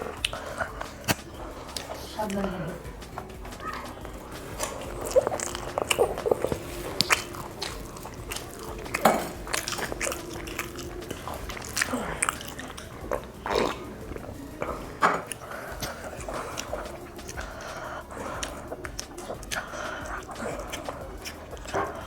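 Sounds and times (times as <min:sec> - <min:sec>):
person biting and chewing food: 0:00.0 - 0:02.0, 0:03.0 - 0:22.0.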